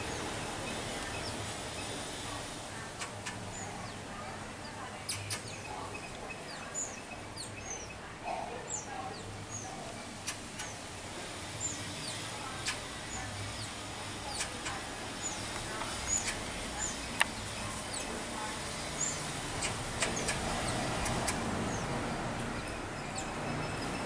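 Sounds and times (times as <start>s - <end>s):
birds chirping: 0.0s - 24.0s
sharp clicks: 10.2s - 10.8s, 19.6s - 21.5s.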